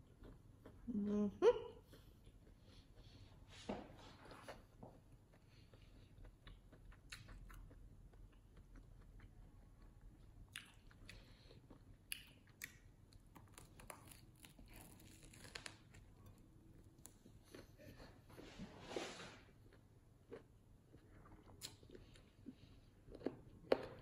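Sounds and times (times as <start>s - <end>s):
chewing crusty sandwich: 0.0s - 0.9s, 4.2s - 18.2s
crisp bread crunches: 13.4s - 16.1s.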